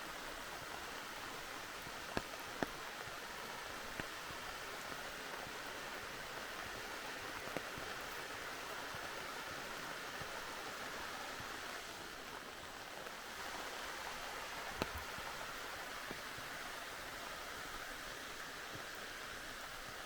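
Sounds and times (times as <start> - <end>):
steady rain: 0.0 - 20.0
raindrops tapping: 14.6 - 15.3.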